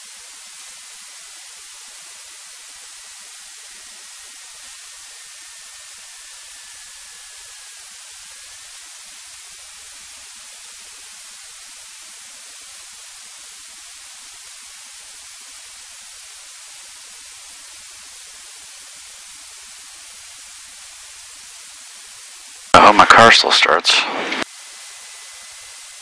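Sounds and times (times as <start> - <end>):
intercom static hiss: 22.8 - 24.4.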